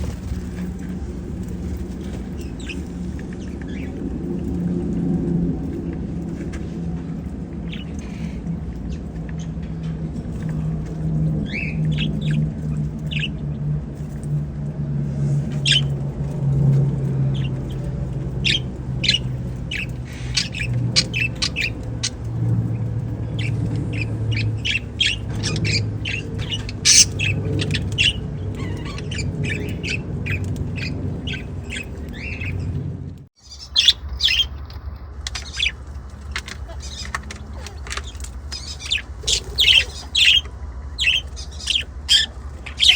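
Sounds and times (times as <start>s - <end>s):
low hum: 0.0s - 42.9s
budgerigars chattering: 11.4s - 13.5s, 17.3s - 32.8s, 33.4s - 34.7s, 35.3s - 42.9s.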